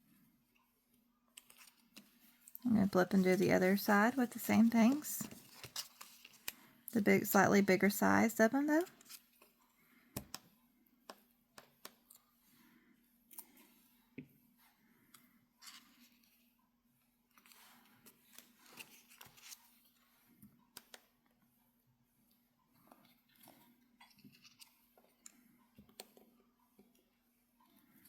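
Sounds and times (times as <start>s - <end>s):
paper rustling: 4.1s - 6.5s
paper clicks and taps: 10.1s - 10.4s.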